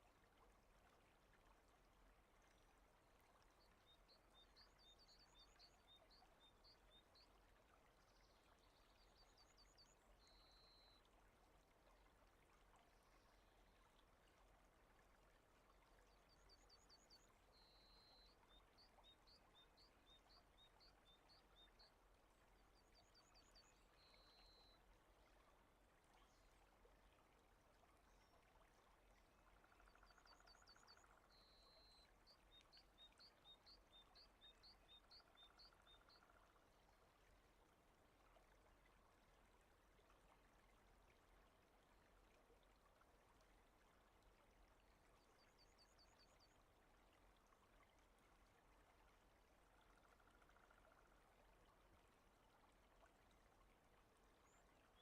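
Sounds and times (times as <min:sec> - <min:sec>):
songbird singing: 0:16.1 - 0:24.8, 0:29.7 - 0:36.6.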